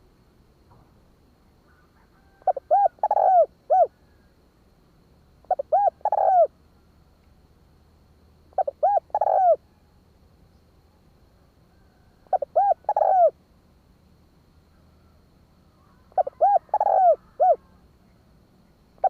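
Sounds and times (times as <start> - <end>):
dove cooing: 1.7 - 4.3, 5.4 - 6.5, 8.5 - 9.8, 12.0 - 13.4, 15.8 - 17.8.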